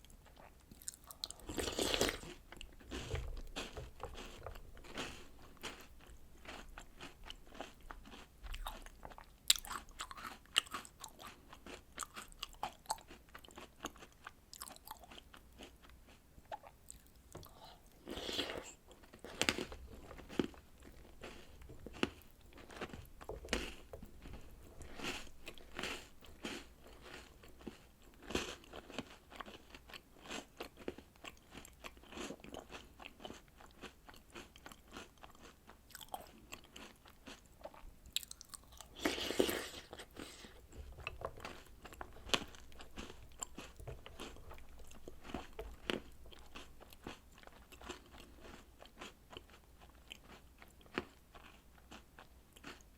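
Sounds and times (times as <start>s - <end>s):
crunchy chewing: 0.0s - 52.9s.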